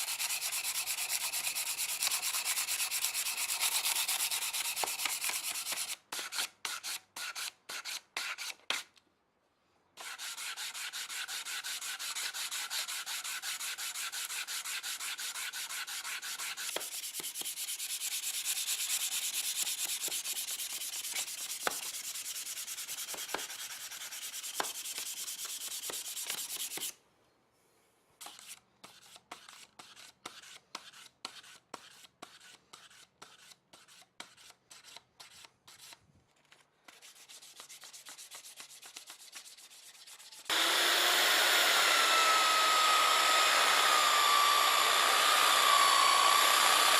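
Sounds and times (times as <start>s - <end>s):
emery paper sanding steel: 0.0s - 8.6s, 10.0s - 27.0s, 28.2s - 36.0s, 36.9s - 40.5s.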